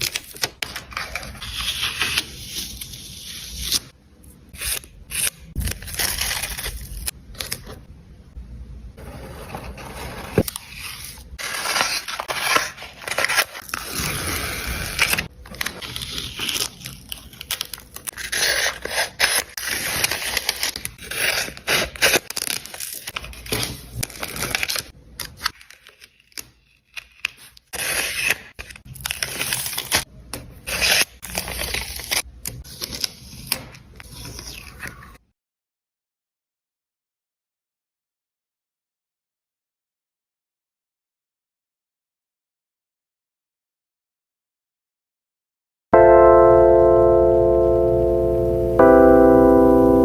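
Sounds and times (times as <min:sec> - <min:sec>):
paper crinkling: 0:00.0 - 0:03.9, 0:05.2 - 0:07.8, 0:10.3 - 0:30.0
paper tearing: 0:00.0 - 0:03.9, 0:04.5 - 0:07.8, 0:10.3 - 0:30.0
paper scraping: 0:09.0 - 0:24.8.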